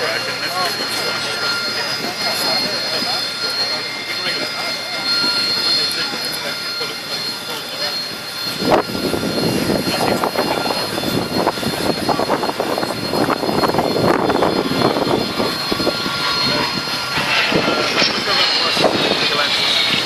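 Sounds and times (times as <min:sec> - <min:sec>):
aircraft engine drone: 0:00.0 - 0:20.0.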